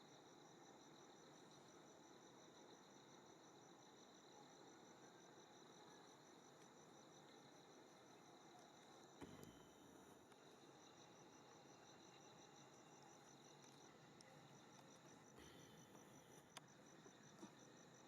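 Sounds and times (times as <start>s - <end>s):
cricket chirping: 0.0s - 18.0s
faint click: 9.2s - 10.4s.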